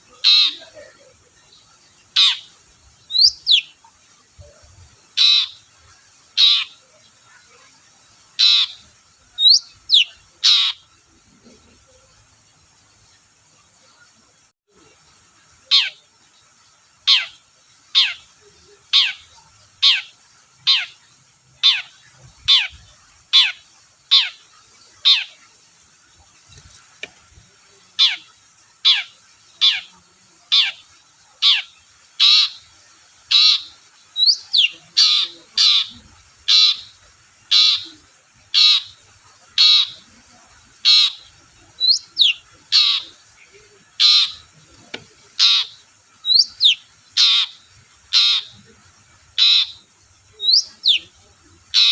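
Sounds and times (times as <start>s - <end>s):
shrike harsh calls: 33.3s - 51.9s.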